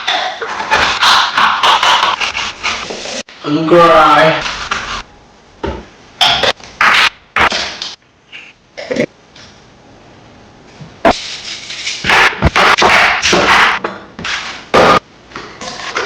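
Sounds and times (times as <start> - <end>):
kitchen knocks and clatters: 0.0 - 2.4, 5.6 - 8.0, 11.8 - 16.0.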